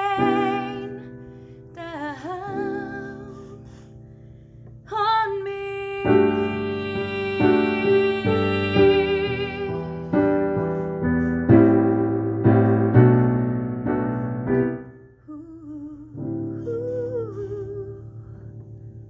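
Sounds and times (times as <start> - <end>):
piano playing ballad chords: 5.9 - 15.2.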